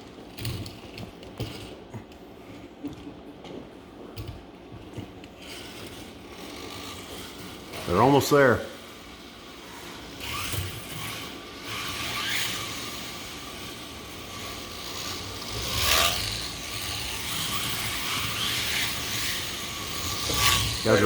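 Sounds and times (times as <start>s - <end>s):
electric motors whining: 4.2s - 21.0s.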